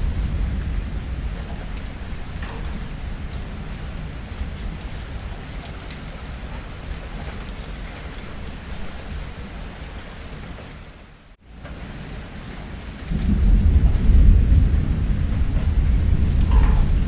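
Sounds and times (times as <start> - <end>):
low rumble: 0.0 - 5.4
raindrops ticking: 0.0 - 17.0
steady rain: 0.0 - 17.0.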